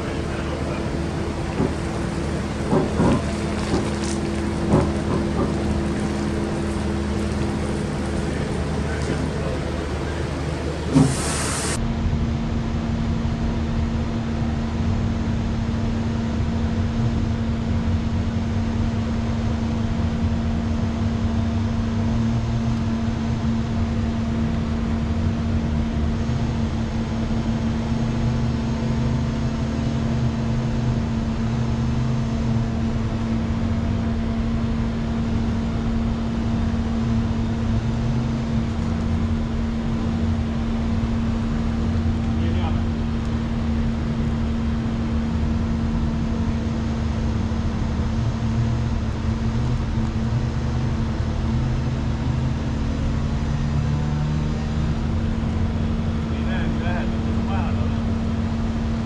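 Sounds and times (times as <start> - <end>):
vehicle engine running: 0.0 - 11.8.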